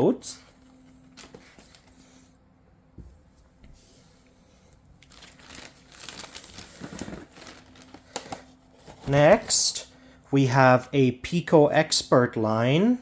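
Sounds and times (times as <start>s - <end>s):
plastic packaging crinkling: 5.0s - 9.6s.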